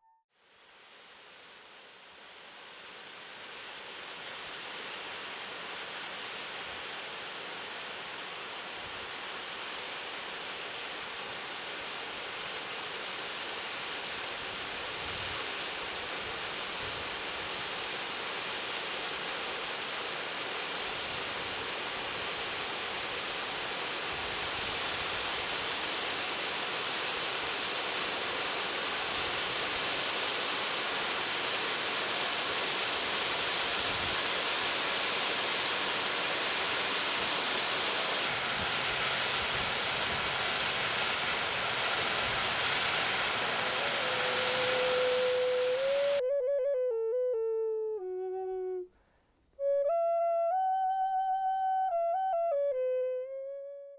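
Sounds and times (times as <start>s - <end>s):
rushing water: 15.7s - 46.2s.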